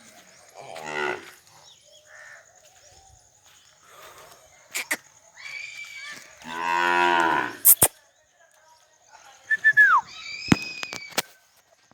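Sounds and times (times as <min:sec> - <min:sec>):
sharp clicks: 0:07.7 - 0:07.9
short falling chirps: 0:07.7 - 0:07.9, 0:09.5 - 0:11.2.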